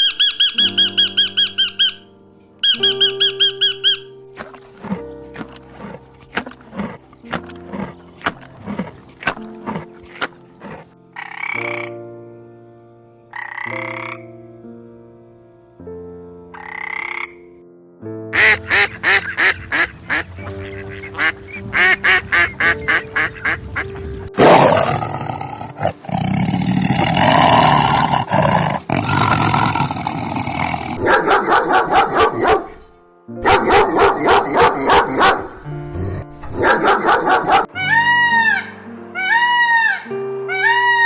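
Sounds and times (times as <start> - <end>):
background music: 0.0 - 29.6, 31.0 - 41.0
rapid animal calls: 2.6 - 10.9.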